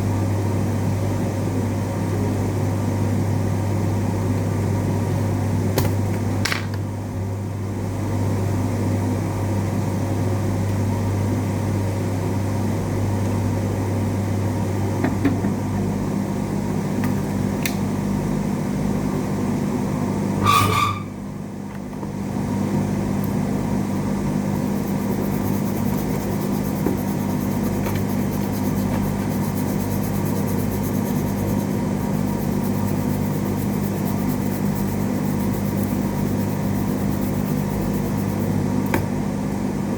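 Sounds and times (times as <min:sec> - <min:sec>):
steady low hum: 0:22.2 - 0:39.9.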